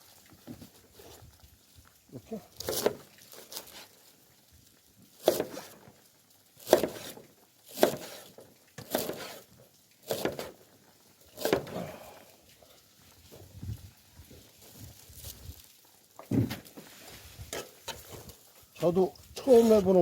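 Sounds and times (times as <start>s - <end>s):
sharp knocks with rustle: 6.6s - 9.3s, 10.1s - 10.6s, 11.4s - 11.8s, 16.2s - 18.4s.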